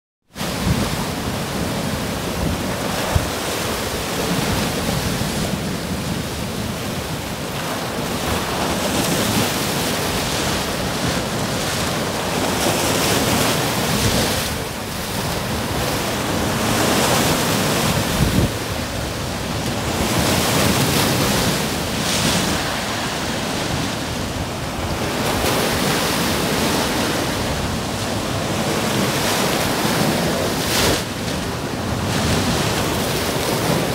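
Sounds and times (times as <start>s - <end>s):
sea waves breaking on shore: 0.3s - 33.9s
wind rumbling on microphone: 7.9s - 33.9s.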